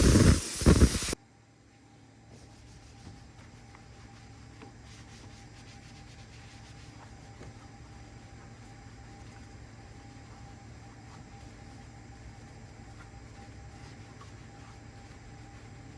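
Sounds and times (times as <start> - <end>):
faint rubbing: 0.0 - 1.2
spray hissing: 0.0 - 1.2.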